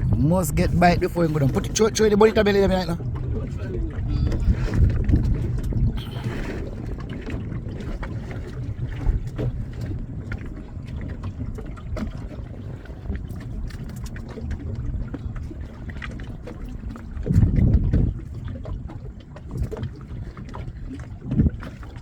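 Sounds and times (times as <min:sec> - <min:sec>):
low boat engine hum: 0:00.0 - 0:22.0
water rumble: 0:00.0 - 0:22.0
wind: 0:00.0 - 0:22.0.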